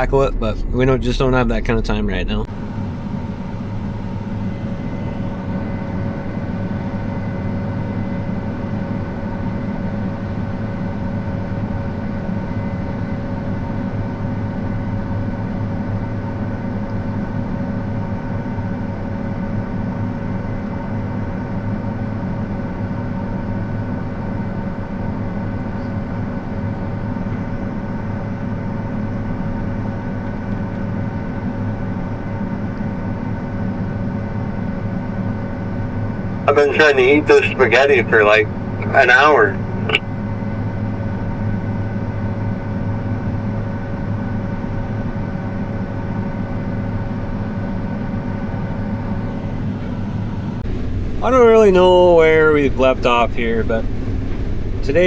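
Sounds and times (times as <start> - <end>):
steady whining tones: 0.0 - 10.6, 49.3 - 55.0
machinery engine droning: 0.0 - 30.3, 35.2 - 43.0, 48.4 - 55.0.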